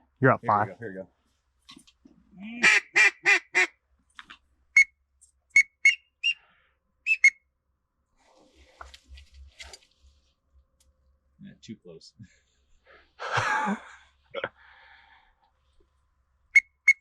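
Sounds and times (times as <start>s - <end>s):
duck quacking: 2.5s - 3.7s
high whistled peeps: 5.5s - 6.4s, 7.1s - 7.4s, 16.6s - 17.0s.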